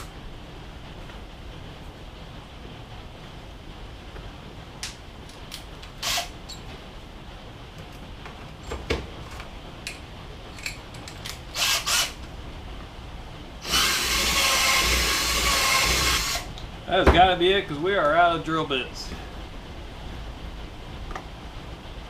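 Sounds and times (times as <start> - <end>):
power drill boring a hole: 11.6 - 12.2, 13.6 - 16.5.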